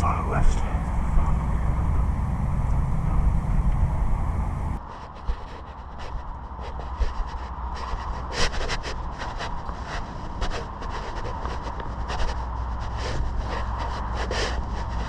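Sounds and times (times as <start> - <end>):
loud low rumble: 0.0 - 15.0
steady low rumble: 0.0 - 15.0
scuffing and scraping strokes: 4.8 - 15.0.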